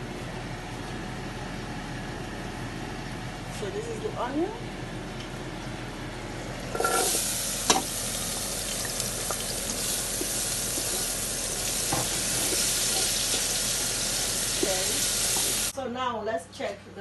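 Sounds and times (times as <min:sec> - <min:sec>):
onion sizzling in hot oil: 0:06.7 - 0:15.7.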